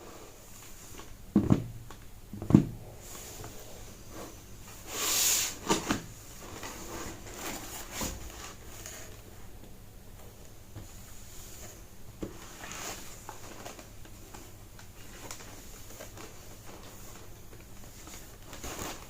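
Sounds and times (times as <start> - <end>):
box sliding rustle: 3.0 - 9.2, 10.9 - 14.4.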